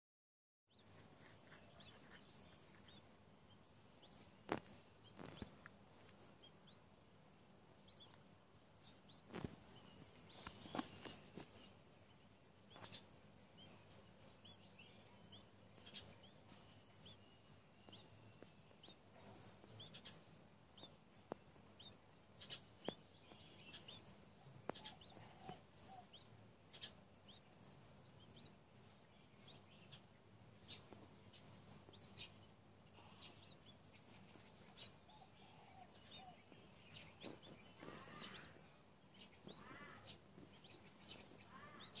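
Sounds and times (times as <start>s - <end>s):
faint high-pitched bird chirps: 0.7s - 6.8s, 8.8s - 42.0s.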